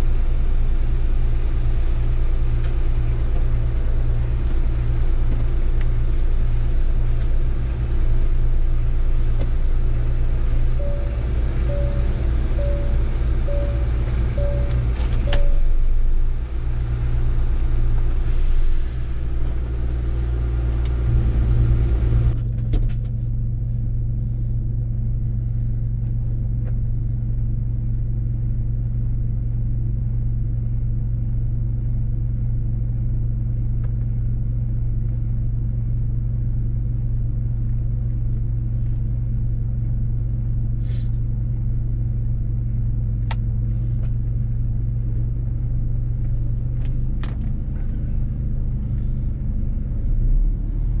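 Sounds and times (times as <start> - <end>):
truck diesel engine droning: 0.0 - 22.6, 35.5 - 51.0
road rumble: 0.0 - 51.0.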